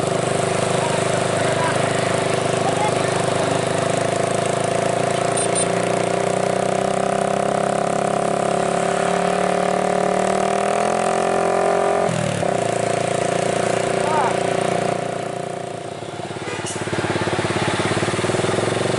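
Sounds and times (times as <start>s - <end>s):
truck diesel engine pulling uphill: 0.0s - 18.9s.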